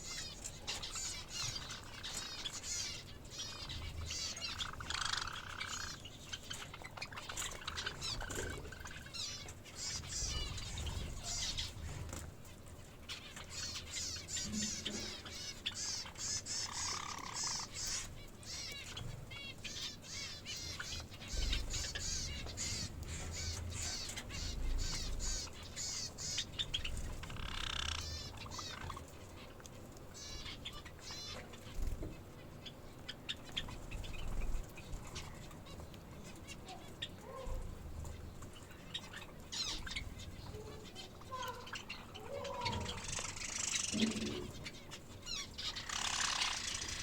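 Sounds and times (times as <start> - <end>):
birds chirping rapidly: 0.0 - 47.0.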